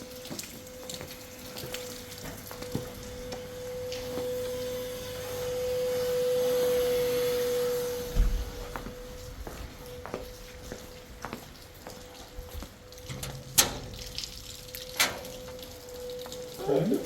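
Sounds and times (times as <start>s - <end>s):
dull thump: 8.1s - 8.8s.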